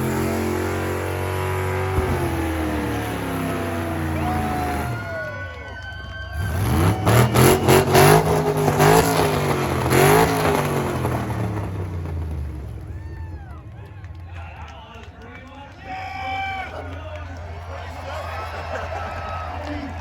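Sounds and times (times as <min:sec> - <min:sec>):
engine revving hard: 0:00.0 - 0:05.5, 0:06.3 - 0:12.9.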